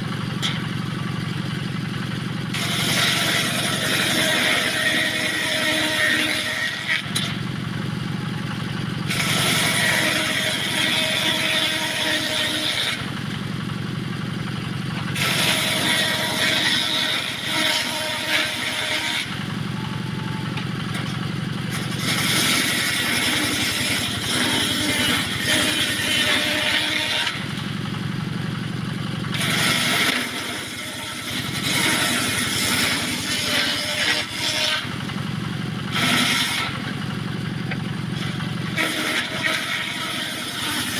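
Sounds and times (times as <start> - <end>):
engine drone: 0.0 - 40.9
circular saw rasping through wood: 2.5 - 7.5, 9.0 - 13.1, 15.1 - 19.4, 20.1 - 27.6, 29.3 - 35.0, 35.8 - 37.0, 37.7 - 40.9.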